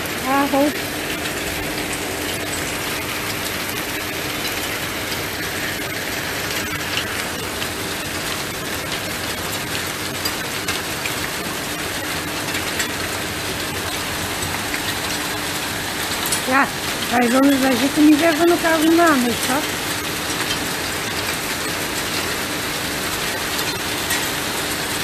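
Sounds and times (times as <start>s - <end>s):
hailstones ticking on paving: 0.0s - 25.0s
heavy rain hiss: 0.0s - 25.0s.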